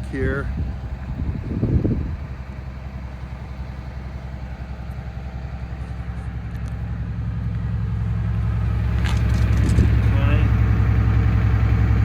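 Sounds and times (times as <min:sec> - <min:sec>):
diesel bus engine idling: 0:00.0 - 0:12.0.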